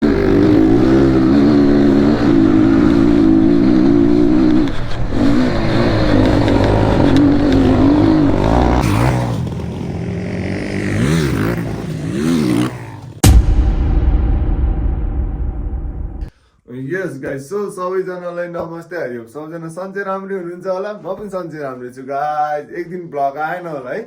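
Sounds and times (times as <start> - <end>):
dirt bike engine revving: 0.0 - 13.3.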